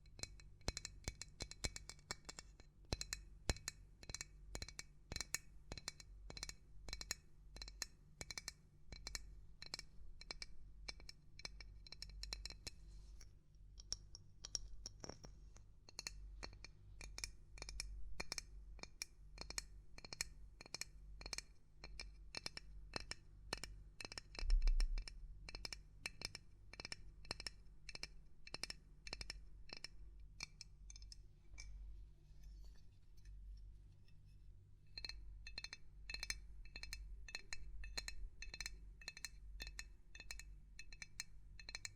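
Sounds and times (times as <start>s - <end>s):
tapping on small hard objects: 13.8s - 31.8s, 35.0s - 41.9s.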